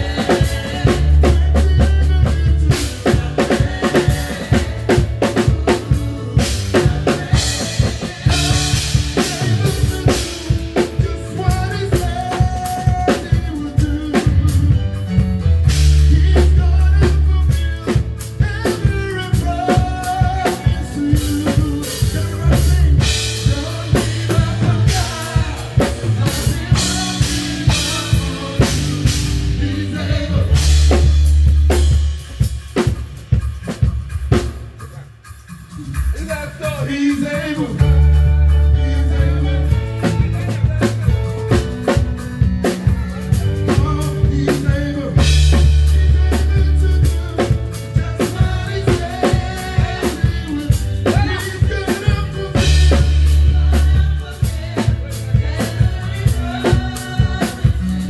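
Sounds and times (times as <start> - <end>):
low bass notes: 0.0 - 10.2, 14.3 - 32.2, 37.8 - 57.8
drum kit groove: 0.0 - 58.0
melodic instrument lines: 37.8 - 47.0.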